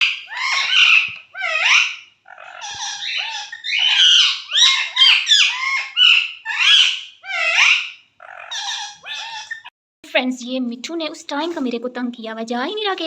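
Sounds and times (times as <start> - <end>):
parrot squawking: 0.0 - 9.7.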